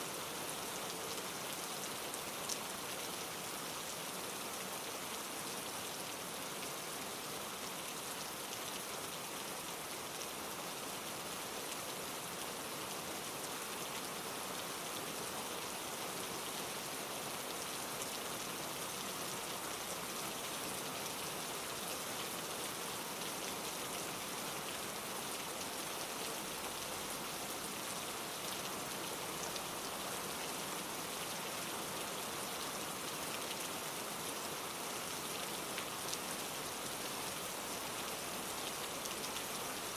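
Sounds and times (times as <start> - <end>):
rain pattering on leaves: 11.4 - 39.9.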